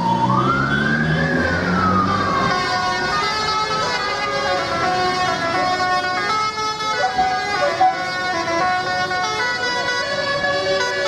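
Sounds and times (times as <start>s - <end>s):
siren-like wailing tones: 0.0s - 4.1s.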